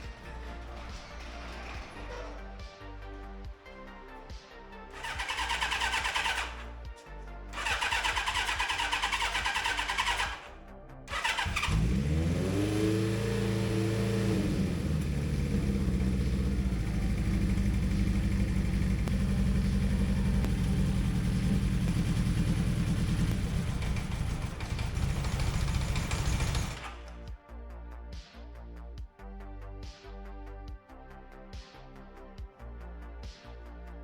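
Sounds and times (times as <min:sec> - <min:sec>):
electric starter cranking: 0:05.0 - 0:06.6, 0:07.6 - 0:10.4, 0:11.1 - 0:27.1
motorcycle engine idling: 0:07.6 - 0:10.4, 0:11.1 - 0:27.0.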